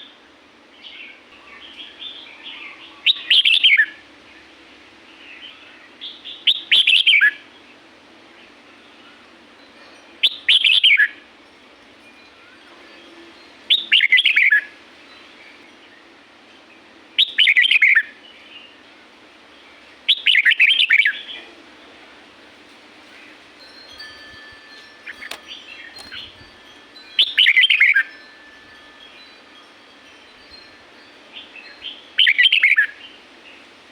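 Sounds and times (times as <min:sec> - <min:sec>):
bird song phrases: 0:00.8 - 0:09.4, 0:13.7 - 0:18.9, 0:19.5 - 0:21.6, 0:24.0 - 0:28.2, 0:30.5 - 0:33.7
soft bird chirps: 0:24.0 - 0:28.3.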